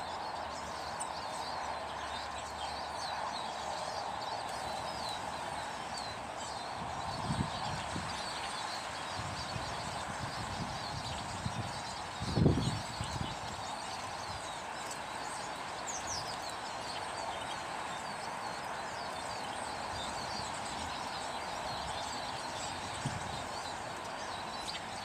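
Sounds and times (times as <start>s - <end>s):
small birds chirping: 0.0s - 25.0s
steady background hiss: 0.0s - 25.0s.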